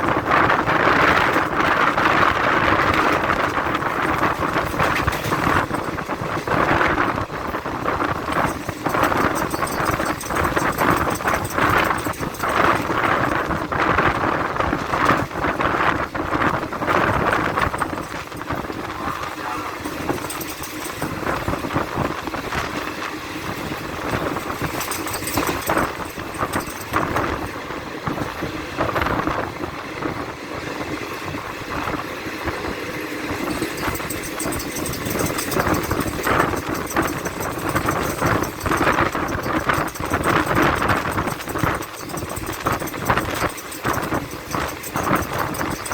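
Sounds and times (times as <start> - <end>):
train wheels clattering on track: 0.0 - 45.9.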